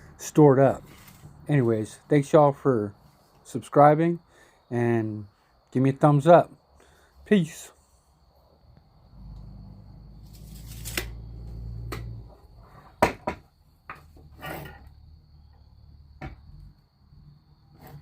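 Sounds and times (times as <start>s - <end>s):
sharp knocks and clatters: 13.0s - 14.3s.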